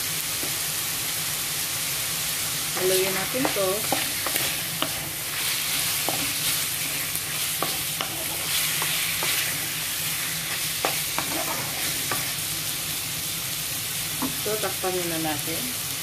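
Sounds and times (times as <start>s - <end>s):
chicken and onion sizzling in oil: 0.0s - 16.0s
wooden spatula scraping a pan: 2.8s - 12.5s.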